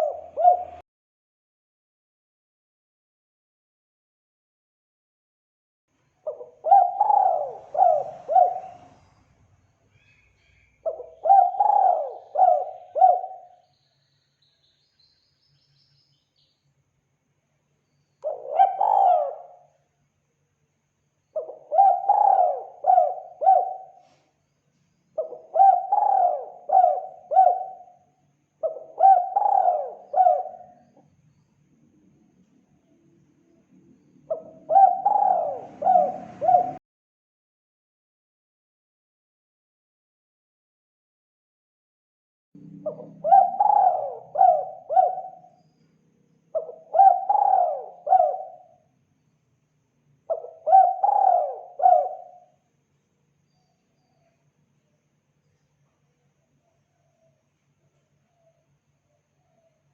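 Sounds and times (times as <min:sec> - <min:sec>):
dove cooing: 0:00.0 - 0:00.8, 0:06.2 - 0:09.1, 0:10.8 - 0:13.6, 0:18.2 - 0:19.7, 0:21.4 - 0:24.2, 0:25.2 - 0:28.0, 0:28.6 - 0:31.1, 0:34.2 - 0:36.8, 0:42.6 - 0:45.6, 0:46.5 - 0:48.8, 0:50.3 - 0:52.6.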